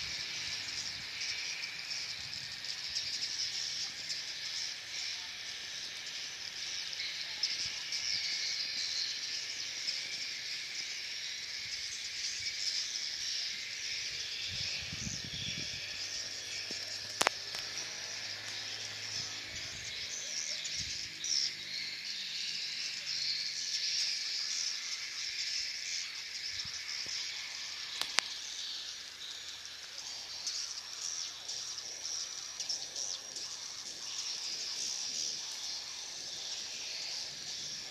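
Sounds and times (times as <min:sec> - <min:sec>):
swiftlets twittering: 0:00.0 - 0:37.9
sharp clicks: 0:16.6 - 0:18.6, 0:27.9 - 0:28.4.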